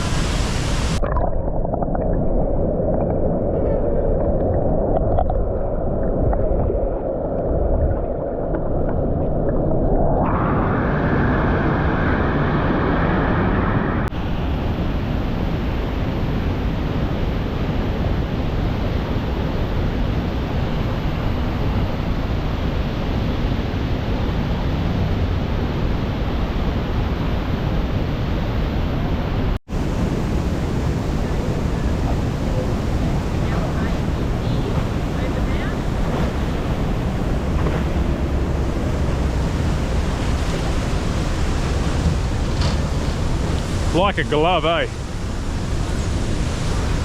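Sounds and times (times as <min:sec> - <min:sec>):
waterfall roaring: 0:00.0 - 0:01.0, 0:28.8 - 0:47.0
wind on microphone: 0:00.0 - 0:47.0.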